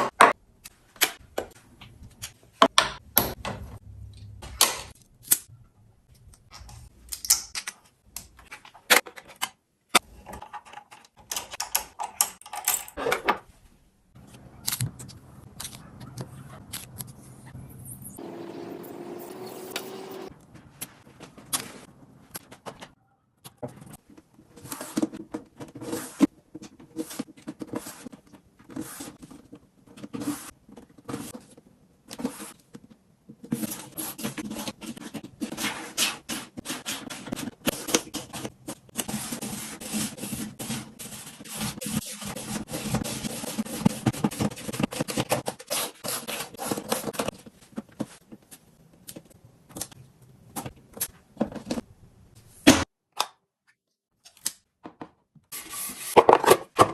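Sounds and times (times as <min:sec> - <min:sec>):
rubbing and scraping: 0:33.4 - 0:48.4.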